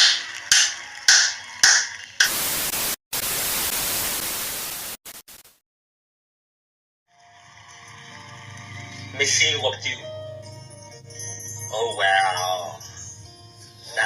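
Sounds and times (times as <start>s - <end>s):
loud static hiss: 2.2s - 5.6s.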